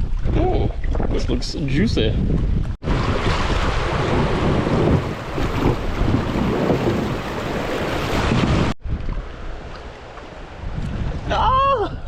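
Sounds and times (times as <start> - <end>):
wind on microphone: 0.0 - 9.8, 10.4 - 12.0
creek water rushing: 2.8 - 11.3.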